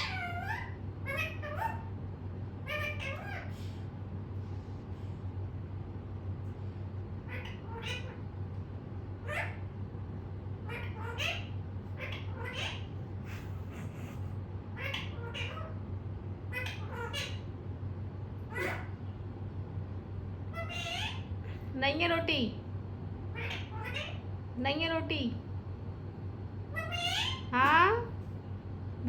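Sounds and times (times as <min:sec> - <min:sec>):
parrot squawking: 0:00.0 - 0:01.9, 0:02.6 - 0:03.7, 0:07.2 - 0:08.3, 0:09.2 - 0:09.7, 0:10.6 - 0:15.9, 0:16.5 - 0:17.5, 0:18.4 - 0:19.1, 0:20.5 - 0:21.6, 0:23.3 - 0:24.3, 0:26.7 - 0:28.0
steady low hum: 0:00.0 - 0:29.0.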